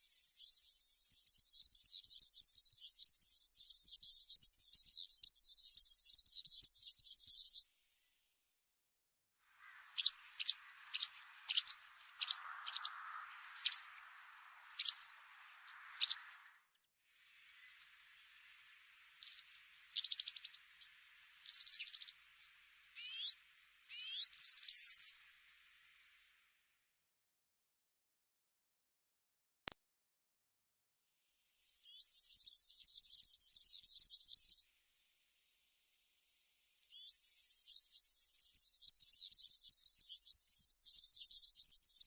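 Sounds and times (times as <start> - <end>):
bird calls: 0.0 - 7.6, 9.6 - 16.7, 17.6 - 26.4, 31.6 - 34.6.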